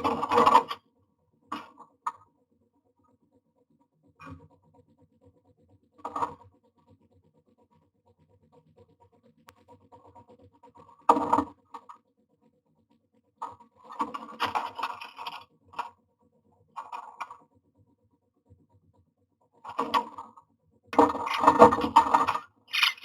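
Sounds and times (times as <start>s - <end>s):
bird scraping and rustling in nest box: 14.0s - 15.4s, 21.0s - 23.0s.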